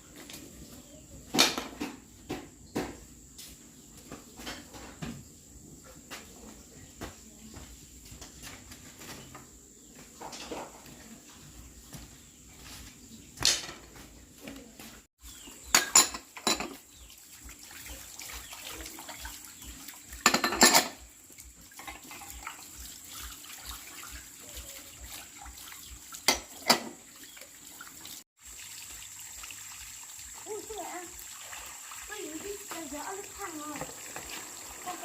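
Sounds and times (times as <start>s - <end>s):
faint running water: 0.0s - 35.0s
pots and dishes clattering: 10.2s - 10.9s, 15.3s - 16.9s, 19.1s - 21.1s, 21.8s - 22.6s, 26.2s - 27.1s.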